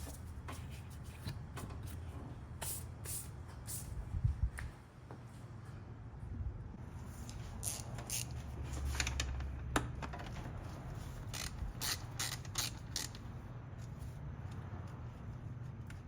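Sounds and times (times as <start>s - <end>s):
hand ratchet clicking: 7.3s - 9.0s, 11.3s - 13.2s.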